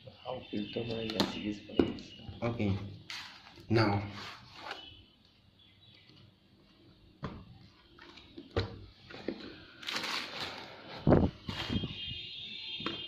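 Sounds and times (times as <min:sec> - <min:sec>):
packaging rustle: 0:09.4 - 0:12.0.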